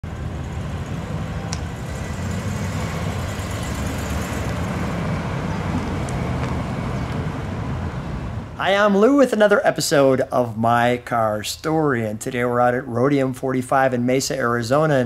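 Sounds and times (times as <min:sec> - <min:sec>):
car engine running: 0:00.0 - 0:08.6
tyre and road noise: 0:00.0 - 0:10.2.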